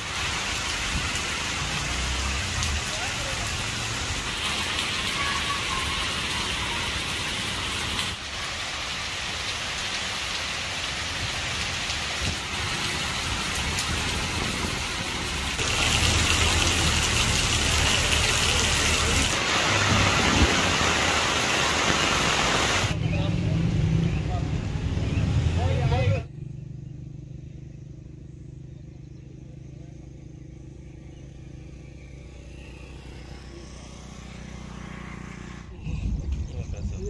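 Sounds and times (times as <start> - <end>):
heavy rain on foliage: 0.0 - 24.2.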